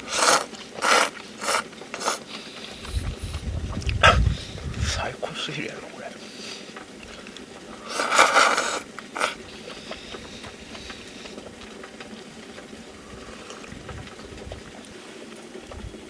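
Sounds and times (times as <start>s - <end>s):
food sizzling: 0.0s - 16.0s
loud scrape: 0.1s - 2.2s, 7.9s - 9.4s.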